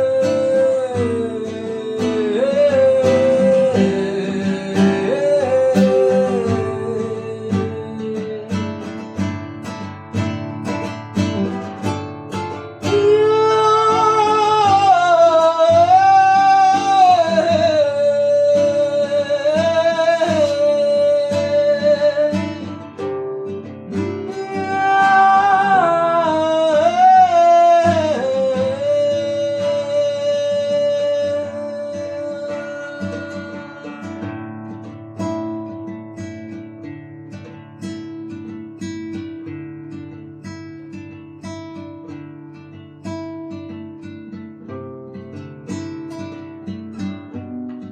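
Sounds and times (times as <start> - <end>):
person singing: 0.0 - 9.6, 10.7 - 35.8
strummed acoustic guitar: 0.0 - 47.9.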